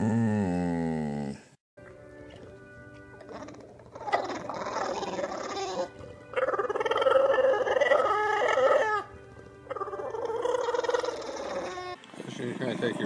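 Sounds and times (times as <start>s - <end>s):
dog howling in wavering calls: 3.3s - 9.1s, 9.7s - 12.0s.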